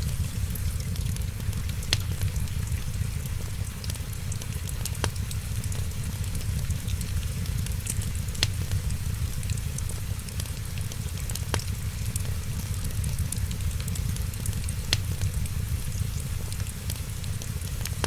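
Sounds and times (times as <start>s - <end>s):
low rumble: 0.0s - 3.5s
rain pattering: 0.0s - 18.0s
wood fire crackling: 0.0s - 18.0s.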